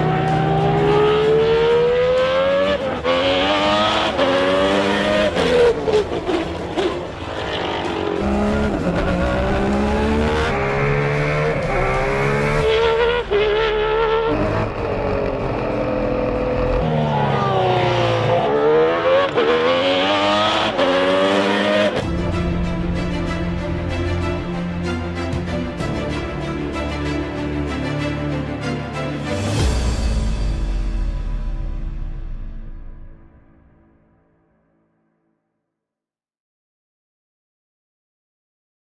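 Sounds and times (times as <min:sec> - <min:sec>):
racing car engine revving: 0:00.0 - 0:22.0
music: 0:00.0 - 0:36.2.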